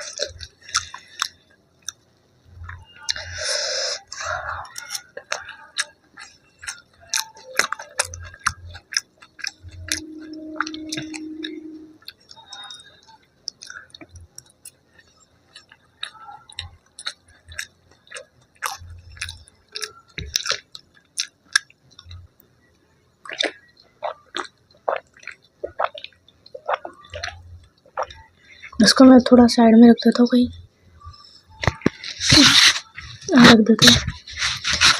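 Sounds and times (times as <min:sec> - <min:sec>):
wet chewing: 0:00.0 - 0:02.0, 0:02.6 - 0:22.2, 0:23.2 - 0:28.9
low hum: 0:09.3 - 0:12.9.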